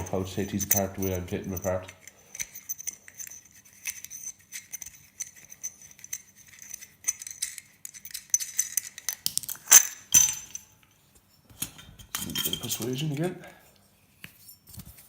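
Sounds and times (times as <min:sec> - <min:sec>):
metal parts clicking and scraping: 0:00.0 - 0:13.3.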